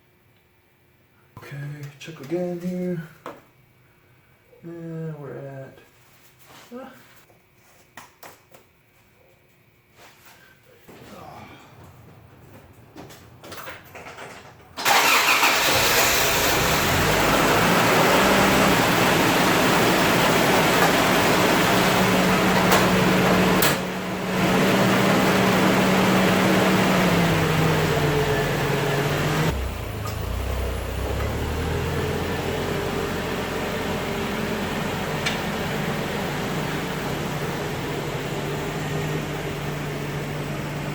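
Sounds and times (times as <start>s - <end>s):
car engine starting and idling: 11.7s - 40.9s.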